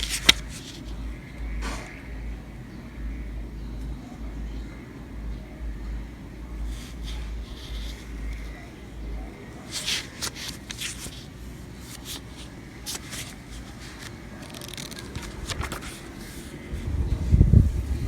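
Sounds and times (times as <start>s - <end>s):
handling rustles and clicks: 0.0s - 1.0s, 9.7s - 16.5s.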